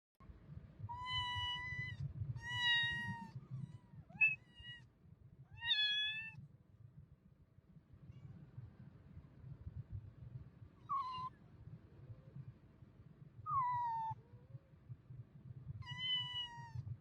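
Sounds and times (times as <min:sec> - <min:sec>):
cat meowing: 0:00.9 - 0:04.8, 0:05.6 - 0:06.4, 0:10.8 - 0:11.3, 0:13.5 - 0:14.2, 0:15.8 - 0:16.8.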